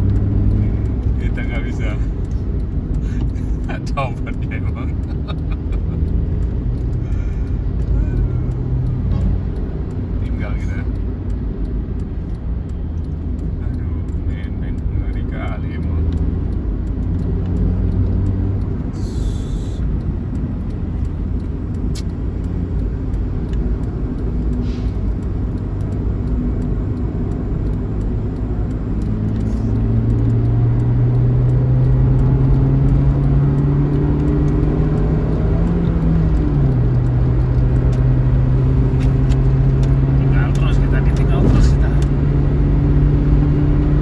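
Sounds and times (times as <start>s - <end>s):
road rumble: 0.0s - 44.0s
bus diesel engine pulling hard: 17.2s - 20.3s, 24.4s - 43.3s.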